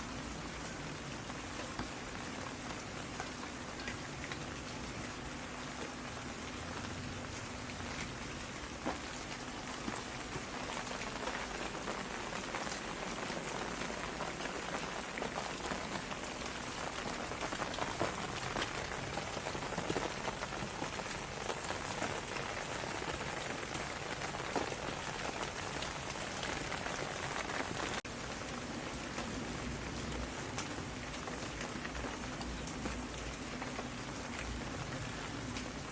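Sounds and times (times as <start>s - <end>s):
rain falling on a surface: 0.0s - 35.9s.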